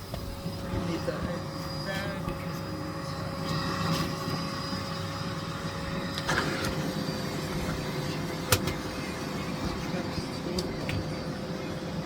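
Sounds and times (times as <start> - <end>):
vacuum cleaner whining: 0.0 - 12.0.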